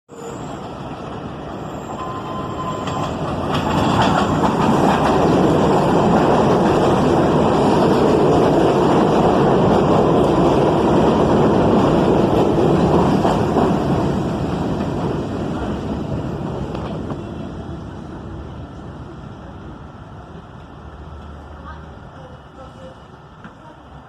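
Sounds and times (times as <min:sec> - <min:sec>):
train wheel squeal: 0:00.1 - 0:00.8, 0:01.5 - 0:04.6
subway train rumbling: 0:00.1 - 0:24.0.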